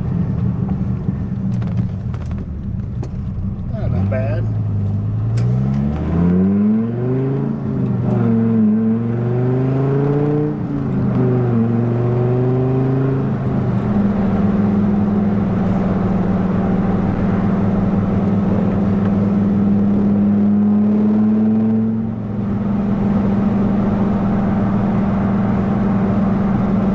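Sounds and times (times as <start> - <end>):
car engine revving and cruising: 0.0 - 26.9.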